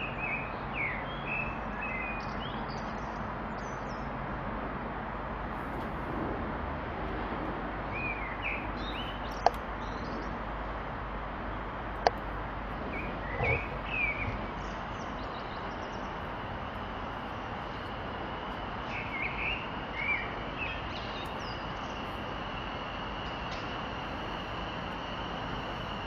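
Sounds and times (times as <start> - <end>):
steady background noise: 0.0 - 26.0
small birds chirping: 7.9 - 10.5, 11.5 - 26.0.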